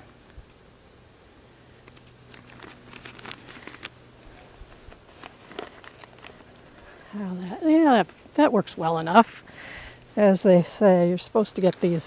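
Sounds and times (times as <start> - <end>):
paper coffee filter crinkling: 1.8 - 7.1.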